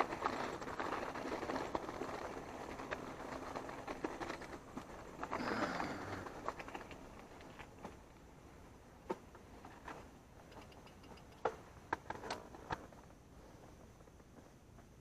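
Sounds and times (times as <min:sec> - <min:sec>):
mountain bike rolling on trail: 0:00.0 - 0:15.0
bike clicks and knocks: 0:09.0 - 0:12.9.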